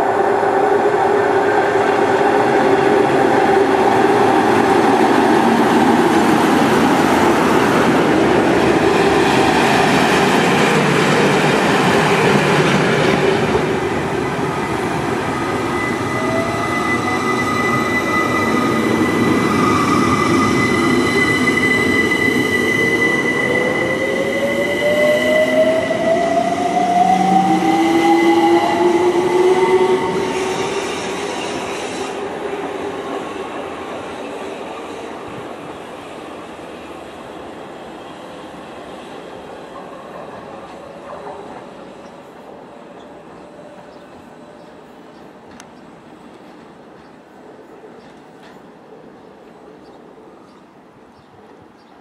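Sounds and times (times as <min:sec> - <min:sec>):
train wheels on rails: 0:00.0 - 0:50.6
constant train hum: 0:00.0 - 0:52.0
wheel whines and squeals: 0:15.1 - 0:32.2.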